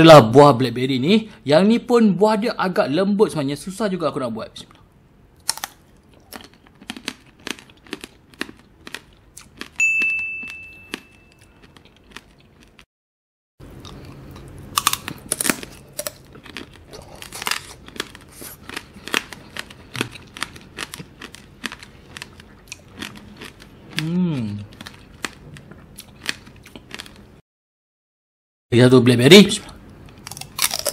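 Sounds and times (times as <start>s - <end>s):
crunching candied fruit: 5.4s - 9.8s, 10.9s - 12.9s, 13.7s - 27.3s, 30.0s - 30.9s
high steady tone: 9.8s - 11.5s.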